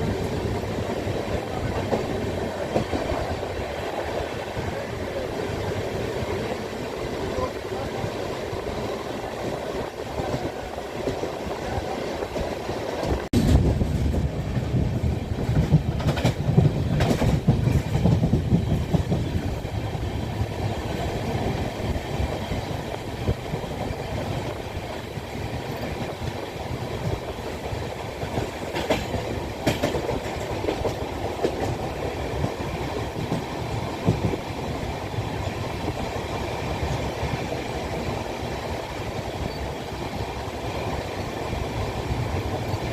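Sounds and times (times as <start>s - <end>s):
train running on rails: 0.0s - 42.9s
wheels clicking over rail joints: 8.8s - 42.9s.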